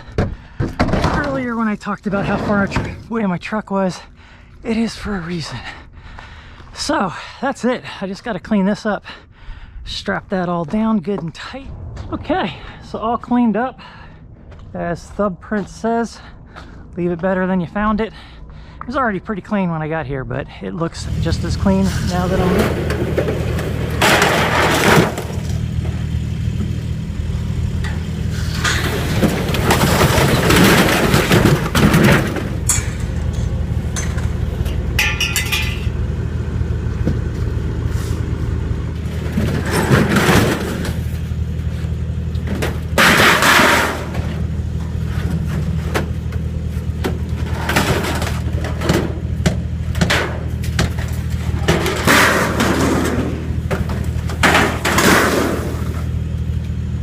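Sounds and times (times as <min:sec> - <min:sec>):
rattling and clattering: 0:00.0 - 0:03.1, 0:21.1 - 0:27.0, 0:27.8 - 0:56.5
vehicle engine running: 0:11.4 - 0:57.0.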